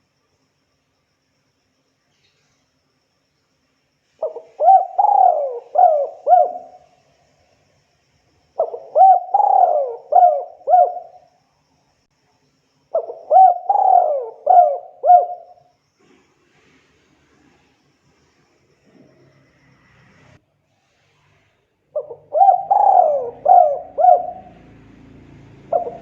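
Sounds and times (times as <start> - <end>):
dove cooing: 4.2 - 6.9, 8.6 - 11.2, 13.0 - 15.6, 21.9 - 26.0.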